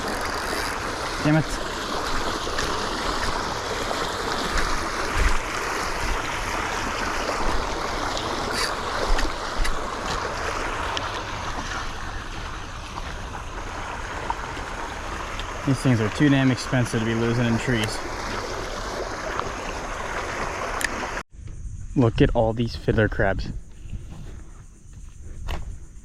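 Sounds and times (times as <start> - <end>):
rushing water: 0.0 - 21.2
wind: 0.0 - 26.0.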